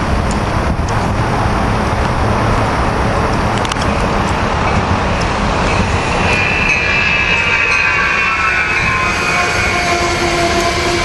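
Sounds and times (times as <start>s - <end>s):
train wheels rumbling on rails: 0.0s - 11.0s
train wheels squealing: 4.5s - 11.0s.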